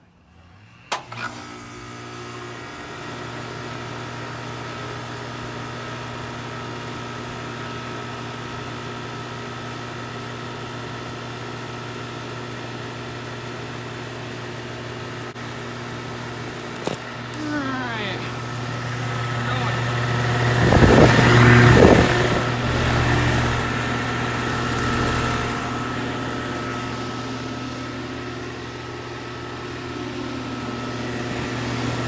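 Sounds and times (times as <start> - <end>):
compressor hum: 12.6 - 32.0
fan rushing: 16.0 - 32.0.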